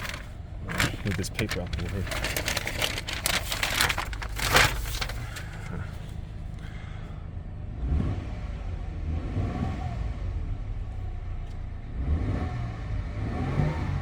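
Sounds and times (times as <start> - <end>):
paper rustling: 0.0 - 6.2
truck engine idling: 0.0 - 7.2.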